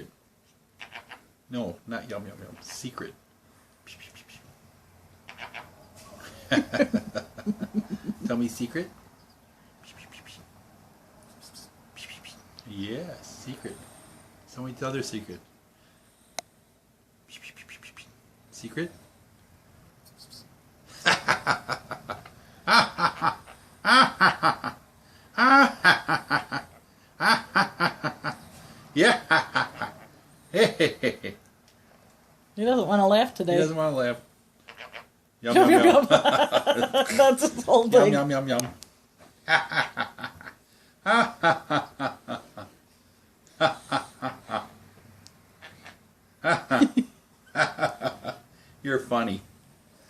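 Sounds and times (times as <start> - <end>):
parrot speech-like vocalizing: 2.5 - 2.9
person laughing: 6.2 - 8.5, 25.4 - 28.4, 35.5 - 38.2, 41.1 - 42.7, 46.4 - 48.4.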